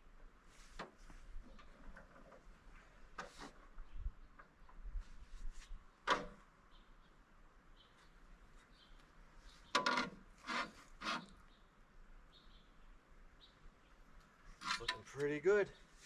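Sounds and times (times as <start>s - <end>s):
knocks and scrapes on metal frame: 0.6s - 3.8s, 5.0s - 6.4s, 9.6s - 11.4s, 14.6s - 15.2s.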